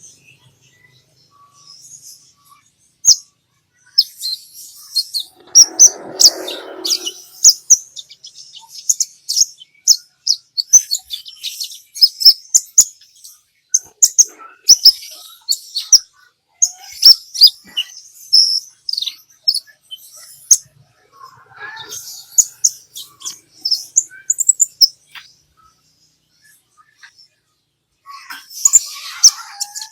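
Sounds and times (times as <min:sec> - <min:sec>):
bird chirping and trilling: 0:03.8 - 0:12.8, 0:13.7 - 0:27.3, 0:28.1 - 0:29.9
low noise: 0:05.1 - 0:07.5.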